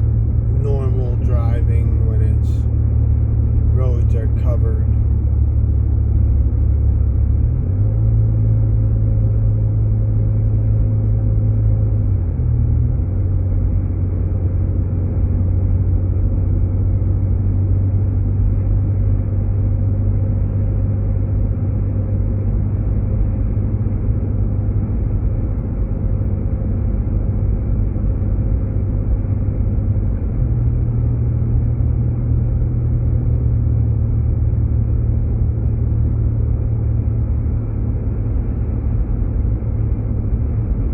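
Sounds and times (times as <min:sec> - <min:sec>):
car engine and road rumble: 0:00.0 - 0:40.9.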